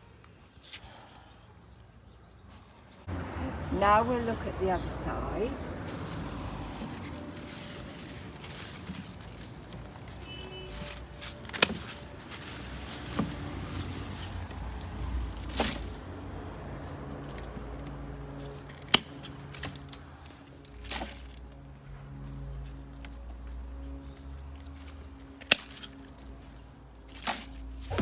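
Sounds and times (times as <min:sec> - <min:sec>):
plant rustling: 0:00.0 - 0:03.1, 0:03.8 - 0:28.0
pruning shears snipping: 0:04.1 - 0:21.4, 0:24.8 - 0:28.0.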